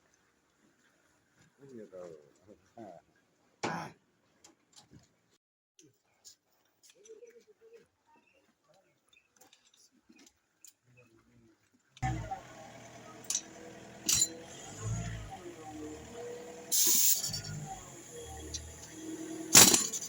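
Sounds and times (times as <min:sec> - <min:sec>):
machine hum: 0:12.0 - 0:20.0.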